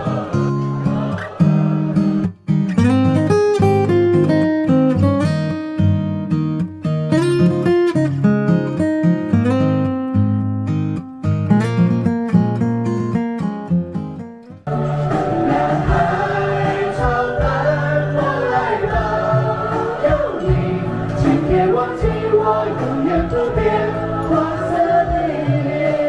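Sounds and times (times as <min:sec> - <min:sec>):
choir singing with accompaniment: 0:00.0 - 0:02.2, 0:14.7 - 0:26.0
plucked acoustic guitar music: 0:00.0 - 0:26.0.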